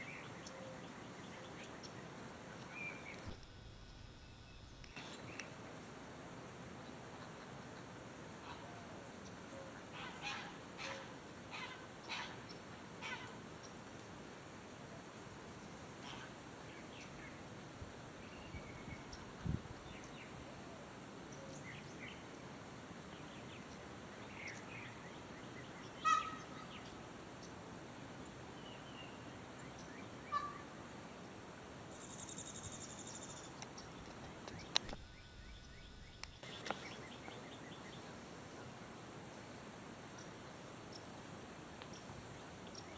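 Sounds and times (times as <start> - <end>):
peafowl calling: 7.2 - 9.0, 9.6 - 13.4, 26.0 - 26.8, 30.2 - 30.8.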